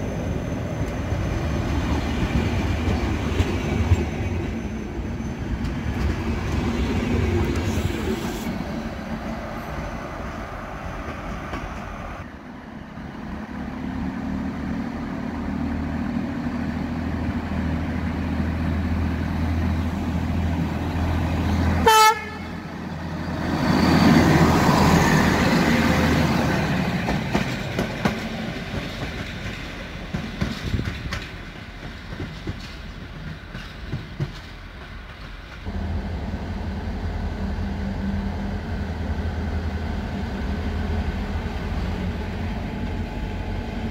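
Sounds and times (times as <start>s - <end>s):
rush of passing train: 0.0s - 43.9s
train engine low hum: 0.0s - 43.9s
locomotive horn blast: 21.8s - 22.7s.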